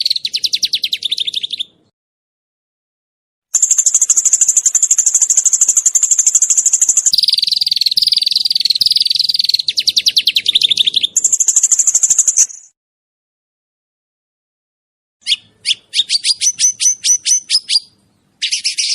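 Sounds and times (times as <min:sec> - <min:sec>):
songbird singing rattling trills: 0:00.0 - 0:01.9, 0:03.6 - 0:12.8, 0:15.2 - 0:18.9.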